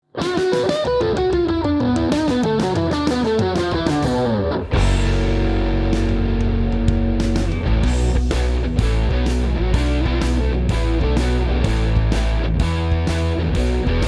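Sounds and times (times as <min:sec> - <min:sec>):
electric guitar single notes with bends: 0:00.2 - 0:14.0
electric guitar chord ringing: 0:03.3 - 0:14.0.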